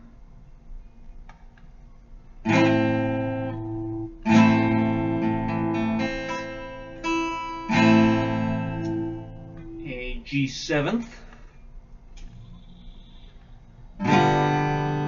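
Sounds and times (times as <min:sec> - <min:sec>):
guitar chord strummed: 0:02.4 - 0:10.3, 0:14.0 - 0:15.0.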